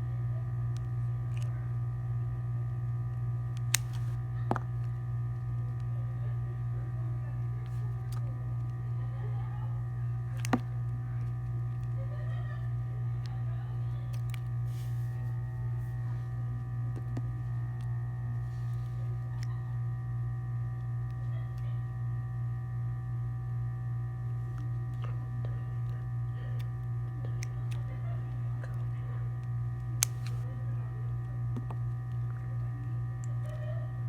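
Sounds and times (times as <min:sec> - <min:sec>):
low hum: 0:00.0 - 0:34.0.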